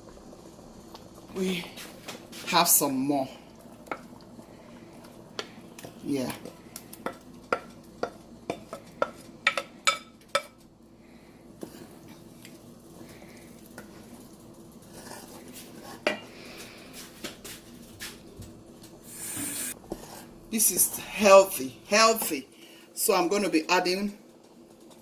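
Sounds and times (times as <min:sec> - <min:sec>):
utensil knocking and scraping pot: 0:05.4 - 0:10.6, 0:14.9 - 0:16.3, 0:19.3 - 0:20.3.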